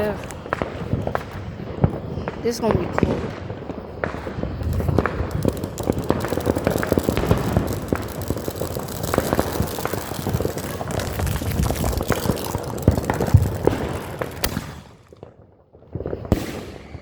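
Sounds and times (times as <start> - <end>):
fireworks crackling pops: 0.0 - 17.0
sharp firework cracks: 0.0 - 17.0.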